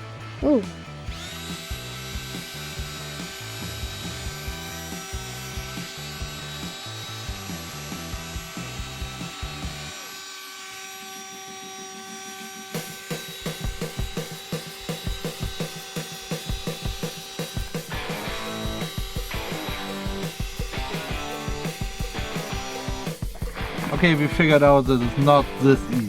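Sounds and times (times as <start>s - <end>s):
power drill sanding plastic: 0.4s - 26.0s
background music with a beat: 12.6s - 26.0s.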